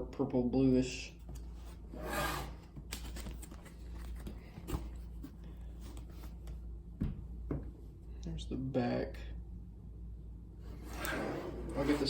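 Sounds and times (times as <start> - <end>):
steady low hum: 0.0 - 12.0
cardboard box rubbing and scraping: 1.9 - 2.7, 10.7 - 12.0.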